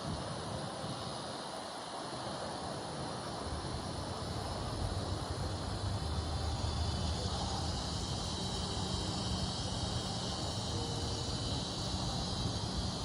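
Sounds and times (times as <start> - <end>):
insect chorus trilling: 0.0 - 13.0
constant low rumble: 3.1 - 13.0.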